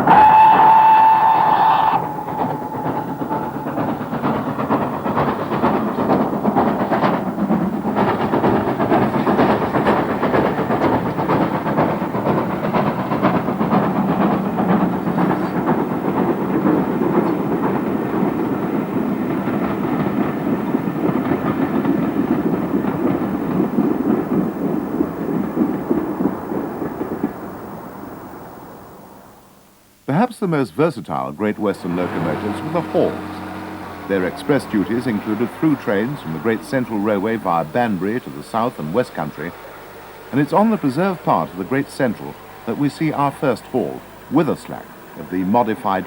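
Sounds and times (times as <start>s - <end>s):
steam locomotive exhaust beating: 0.0s - 46.0s.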